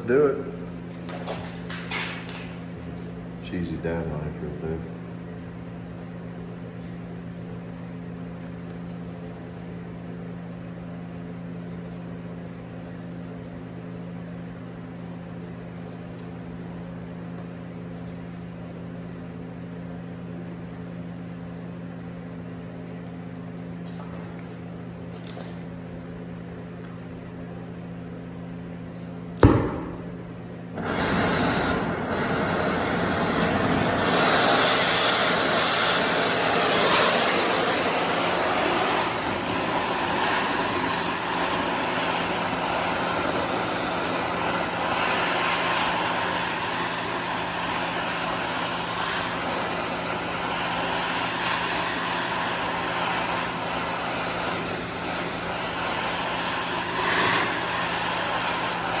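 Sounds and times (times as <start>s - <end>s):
sharp pop: 29.4s - 30.2s
torch hissing: 30.8s - 59.0s.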